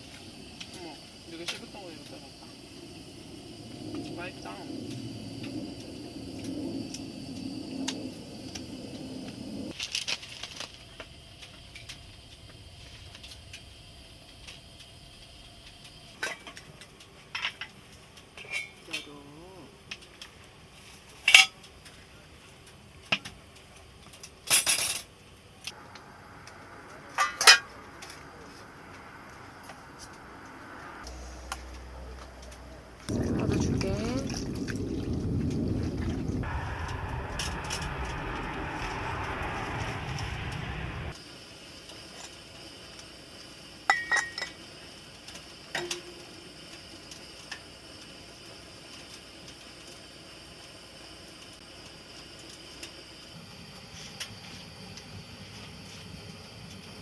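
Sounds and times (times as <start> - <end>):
faint steady hiss: 0.0 - 8.6, 9.6 - 34.3.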